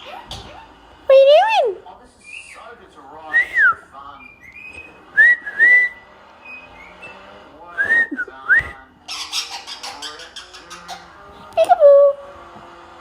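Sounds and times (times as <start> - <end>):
whistled notes: 3.3 - 8.8.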